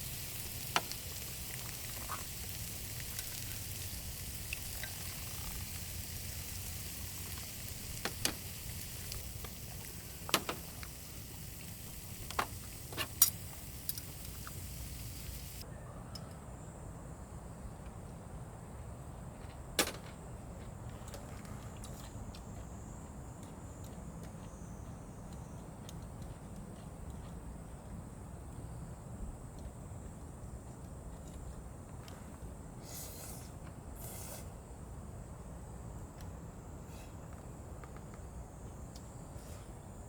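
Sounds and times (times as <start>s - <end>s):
food sizzling in a hot pan: 0.0s - 15.6s.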